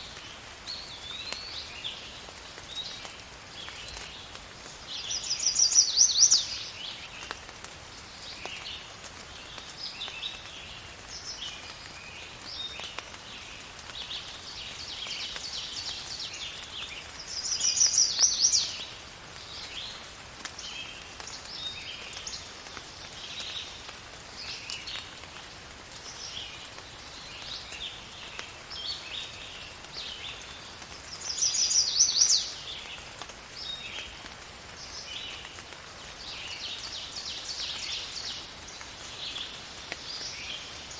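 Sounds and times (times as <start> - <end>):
rain hiss: 0.0 - 40.9
birds chirping and calling: 5.0 - 6.6, 17.4 - 19.0, 31.2 - 32.6.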